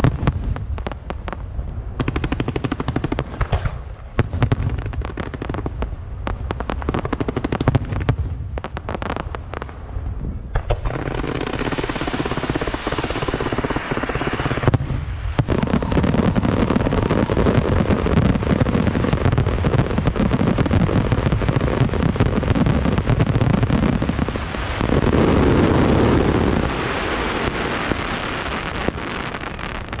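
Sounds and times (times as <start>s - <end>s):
fountain fireworks hissing: 10.7s - 30.0s.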